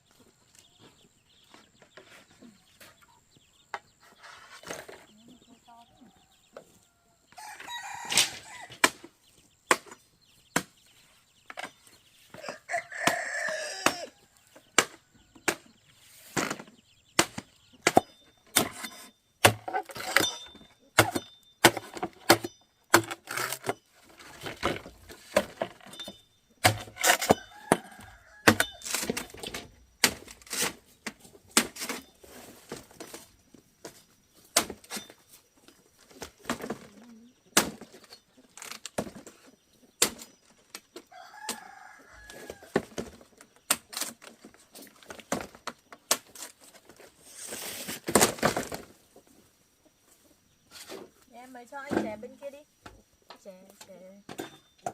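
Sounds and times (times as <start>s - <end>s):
chickens clucking: 0.0s - 21.4s, 30.8s - 47.8s, 48.6s - 54.6s
rooster crowing: 6.0s - 8.8s, 12.4s - 14.4s, 27.2s - 28.9s, 41.1s - 42.8s.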